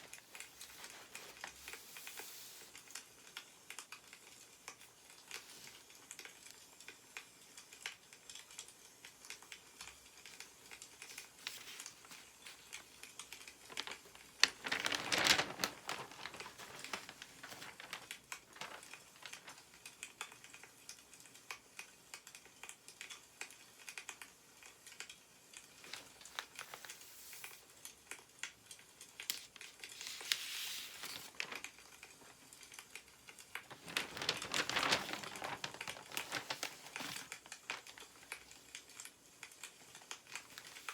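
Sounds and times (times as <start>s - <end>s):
newspaper pages rustling: 0.0s - 3.0s, 10.2s - 20.0s, 25.7s - 27.7s, 29.1s - 39.0s, 39.9s - 40.9s
faint ticks and clicks: 2.7s - 29.9s.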